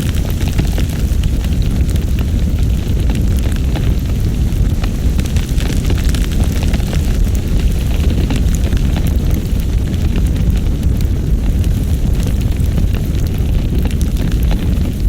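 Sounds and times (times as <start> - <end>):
faint crackles: 0.0 - 15.0
strong wind blowing: 0.0 - 15.0.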